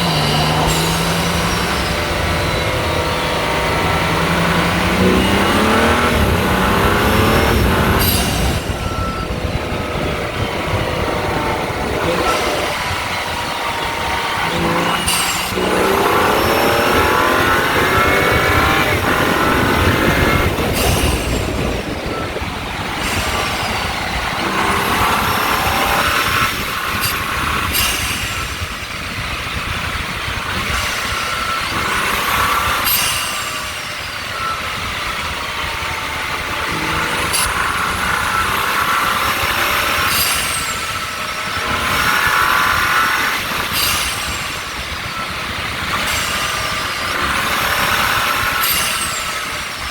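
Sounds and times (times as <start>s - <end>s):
car engine revving: 0.0s - 49.9s
road noise: 0.0s - 49.9s
wind noise: 0.0s - 49.9s.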